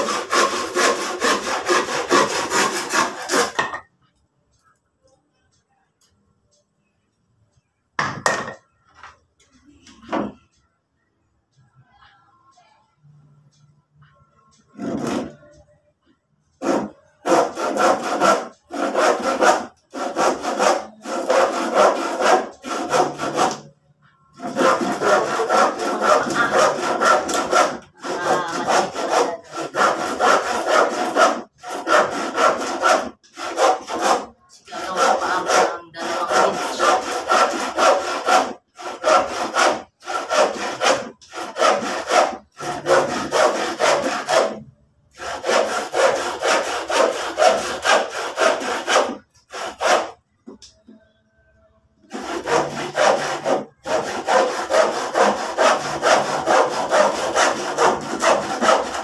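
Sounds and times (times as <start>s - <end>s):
hand saw cutting wood: 0.0s - 3.7s, 14.8s - 15.5s, 16.6s - 23.7s, 24.4s - 50.2s, 52.1s - 59.0s.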